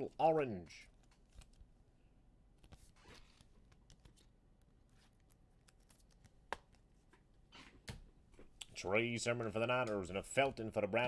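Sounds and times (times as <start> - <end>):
trading cards rustling and clicking: 0.9 - 1.7, 2.6 - 7.2.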